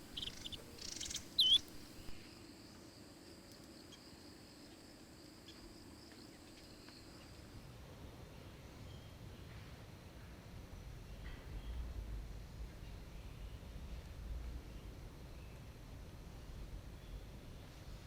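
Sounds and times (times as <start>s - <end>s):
high insect trill: 0.0s - 2.2s
sharp bird chirps: 0.0s - 2.2s.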